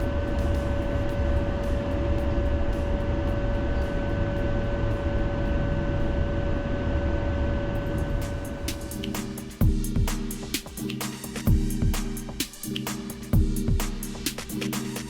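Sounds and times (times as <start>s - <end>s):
tram running low rumble: 0.0s - 9.0s
constant whine: 0.0s - 15.0s.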